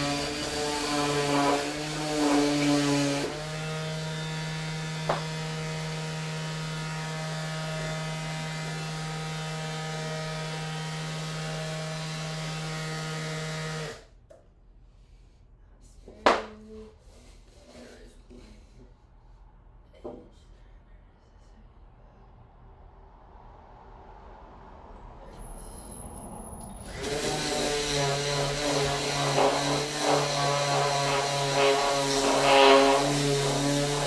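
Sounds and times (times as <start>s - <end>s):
electric sander running: 26.8s - 34.0s.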